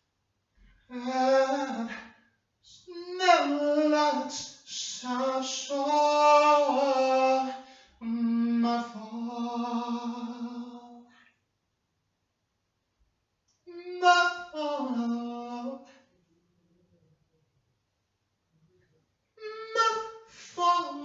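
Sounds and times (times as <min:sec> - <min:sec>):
person singing unaccompanied: 0:00.9 - 0:02.0, 0:02.7 - 0:11.0, 0:13.6 - 0:16.0, 0:19.4 - 0:21.0.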